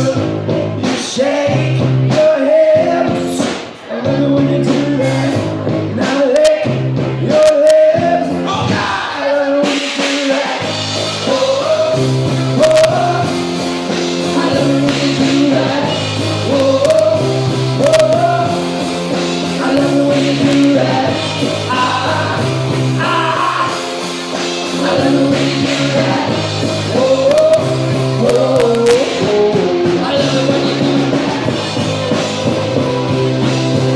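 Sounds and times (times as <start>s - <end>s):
bass guitar: 0.0s - 9.0s, 10.6s - 33.9s
guitar: 0.0s - 33.9s
person singing: 11.2s - 13.4s, 14.2s - 31.6s.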